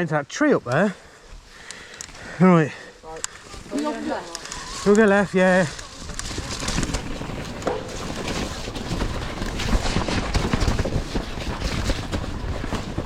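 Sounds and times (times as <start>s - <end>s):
bike tyres rumbling on trail: 1.0s - 13.0s
bike clattering and rattling: 3.3s - 13.0s.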